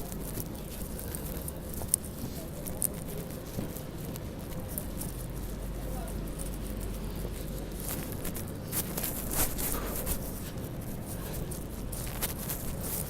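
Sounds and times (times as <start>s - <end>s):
city noise: 0.0s - 13.0s
footsteps crunching through snow: 7.7s - 10.6s.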